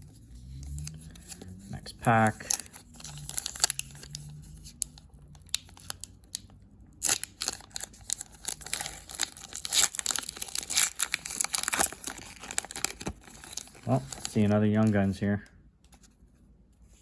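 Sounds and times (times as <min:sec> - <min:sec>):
foil wrapper tearing and crinkling: 0:02.4 - 0:06.1, 0:07.0 - 0:14.4.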